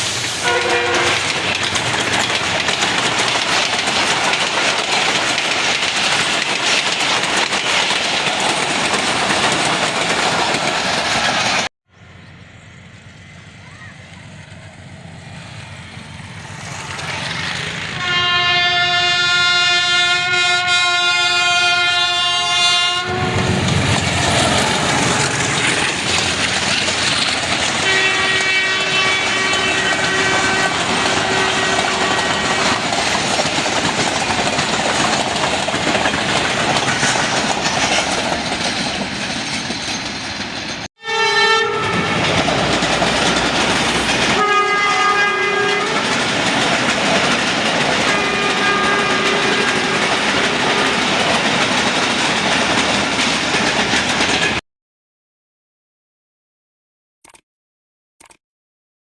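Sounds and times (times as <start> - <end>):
train coaches rumbling and clattering: 0.0 - 54.6
train horn blast: 0.4 - 1.4, 17.9 - 23.8, 27.8 - 32.9, 41.0 - 42.4, 44.3 - 46.2, 48.0 - 51.1.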